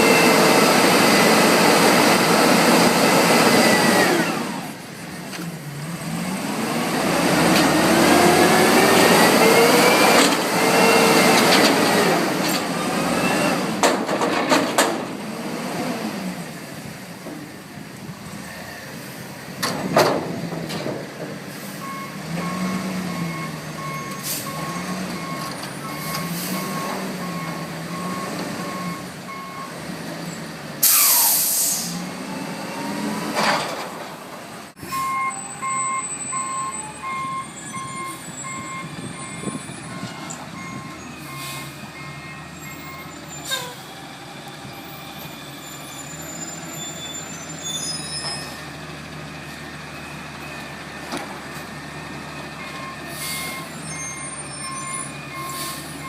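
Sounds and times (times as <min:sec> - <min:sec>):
garbage truck diesel engine: 0:00.0 - 0:56.0
air brake hiss: 0:30.8 - 0:32.0, 0:41.2 - 0:41.8, 0:55.4 - 0:56.0
backup alarm beeping: 0:34.9 - 0:43.1.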